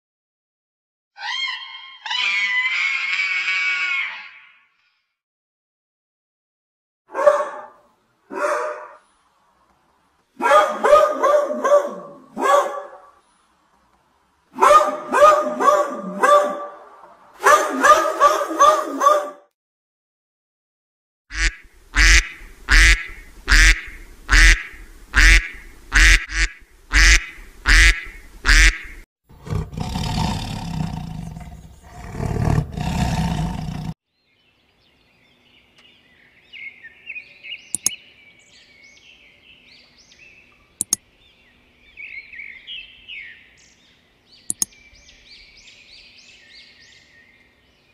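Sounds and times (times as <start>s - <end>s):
loud animal calls: 1.2s - 4.7s, 21.3s - 31.0s
rough noisy animal call: 1.2s - 4.7s, 21.3s - 34.0s
birds twittering and chirping: 34.1s - 47.9s
sharp clicks: 37.7s - 38.0s, 40.8s - 41.0s, 44.5s - 44.7s.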